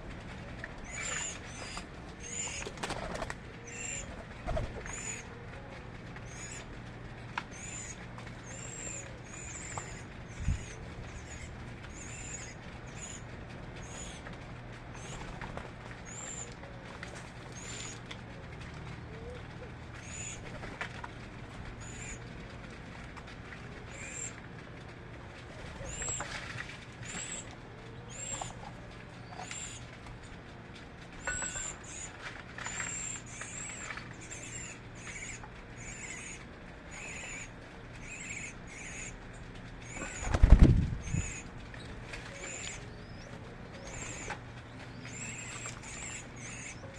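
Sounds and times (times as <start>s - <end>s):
low steady hum: 0.0s - 46.9s
small birds chirping: 0.8s - 5.4s, 6.2s - 14.3s, 16.0s - 16.6s, 17.5s - 18.0s, 18.9s - 20.5s, 21.7s - 22.3s, 23.8s - 24.4s, 25.8s - 26.3s, 27.0s - 30.5s, 31.2s - 46.9s.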